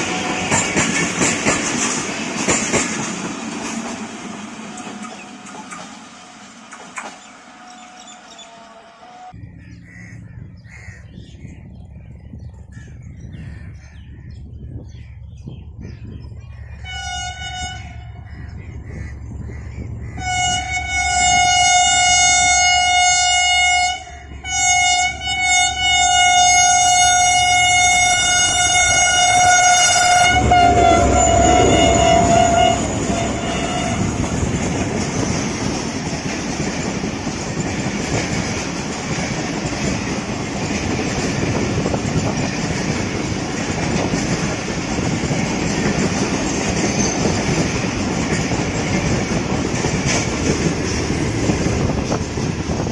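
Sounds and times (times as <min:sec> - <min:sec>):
diesel locomotive engine rumble: 0:00.0 - 0:52.9
train horn blasts: 0:07.5 - 0:09.4, 0:16.8 - 0:18.3, 0:20.1 - 0:34.7.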